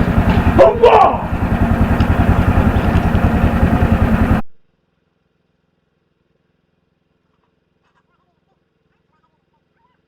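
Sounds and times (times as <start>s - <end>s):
engine running with rapid pulse: 0.0s - 4.5s.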